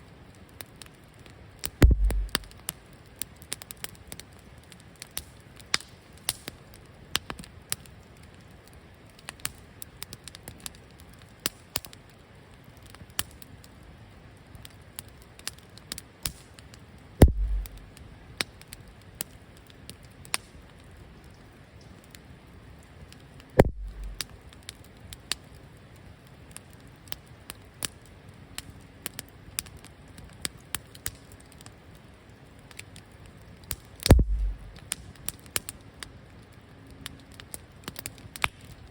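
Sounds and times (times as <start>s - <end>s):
campfire crackling and popping: 0.1s - 38.9s
loud knocks: 1.8s - 2.5s, 17.2s - 17.8s, 34.1s - 34.8s
low thud: 1.8s - 2.5s, 17.2s - 17.9s, 23.6s - 24.2s, 34.1s - 34.8s.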